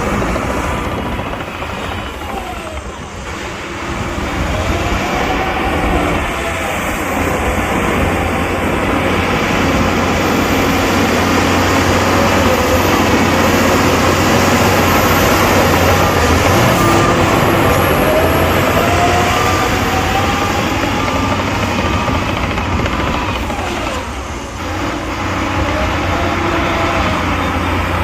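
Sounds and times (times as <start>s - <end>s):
diesel engine drone: 0.0s - 28.0s
rising whine: 0.0s - 28.0s.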